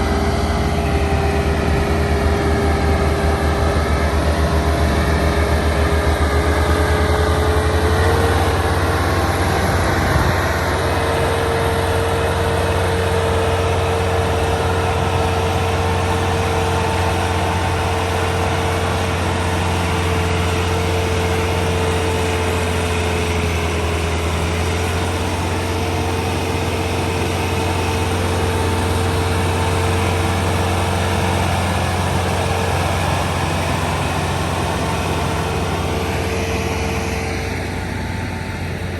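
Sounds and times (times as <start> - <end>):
engine whine: 0.0 - 38.9
tractor diesel engine running: 0.0 - 38.9.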